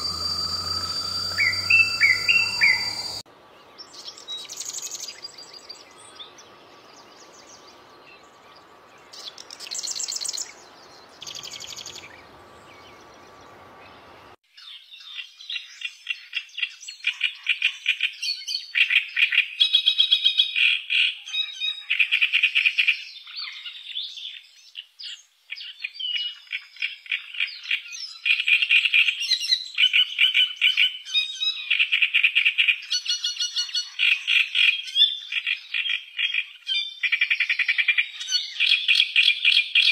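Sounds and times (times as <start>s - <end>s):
chorus of rapid pulsed calls: 0.0s - 3.2s
high bird trills: 0.0s - 3.2s.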